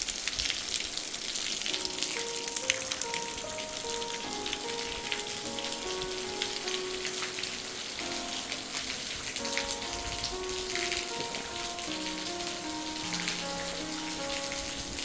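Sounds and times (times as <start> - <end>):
steady rain falling: 0.0 - 15.0
soft music with held notes: 1.5 - 15.0.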